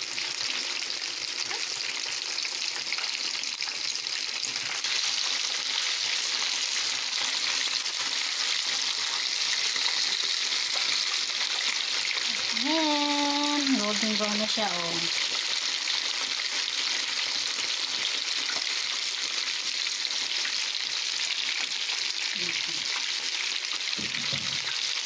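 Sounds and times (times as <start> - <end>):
chicken deep-frying in oil: 0.0 - 25.0.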